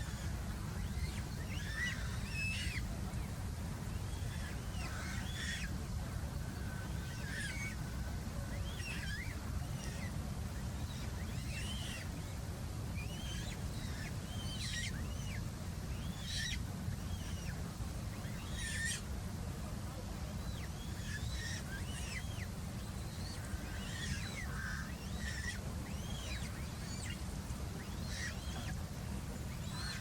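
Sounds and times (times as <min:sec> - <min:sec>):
bird calling in harsh phrases: 0:18.3 - 0:19.0, 0:20.8 - 0:27.2, 0:27.8 - 0:28.8, 0:29.6 - 0:30.0.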